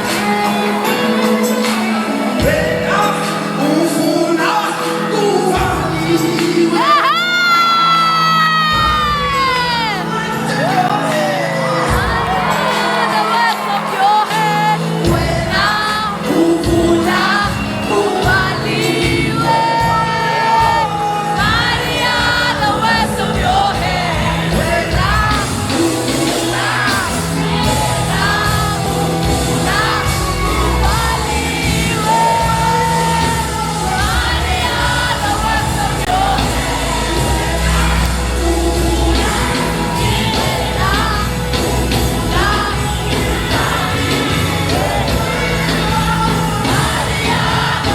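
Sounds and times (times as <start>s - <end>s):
band with bass line: 0.0s - 47.9s
voices singing gospel: 0.0s - 47.9s.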